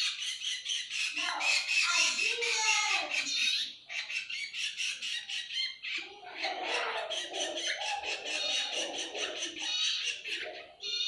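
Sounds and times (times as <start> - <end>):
fledgling birds begging calls: 0.0 - 11.0.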